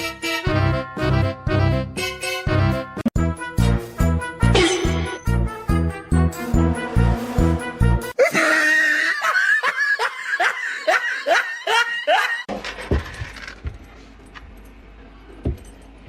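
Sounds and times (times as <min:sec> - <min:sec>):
person laughing: 0:04.6 - 0:05.2, 0:08.2 - 0:12.5.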